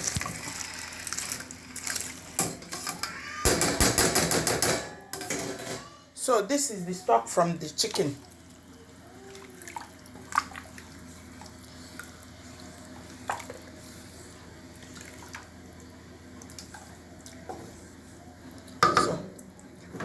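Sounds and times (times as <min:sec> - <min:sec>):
liquid trickling: 0:07.9 - 0:13.7.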